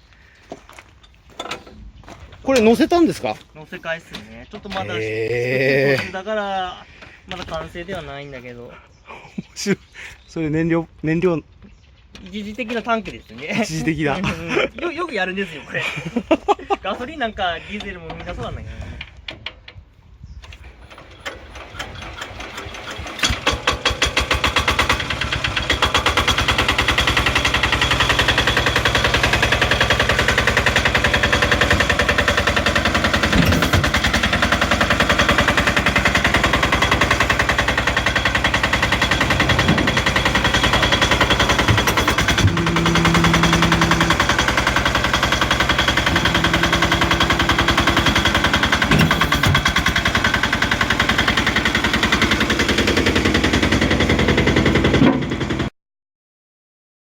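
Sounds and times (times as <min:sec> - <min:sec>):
engine starting and knocking: 0:20.4 - 0:55.7.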